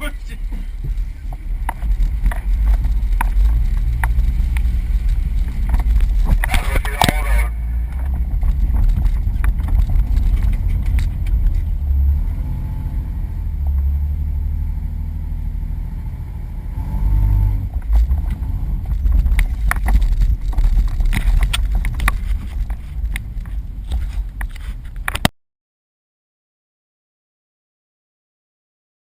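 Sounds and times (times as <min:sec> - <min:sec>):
low engine rumble: 0:00.0 - 0:25.3
knocks and clatters: 0:00.4 - 0:12.0, 0:17.7 - 0:25.3.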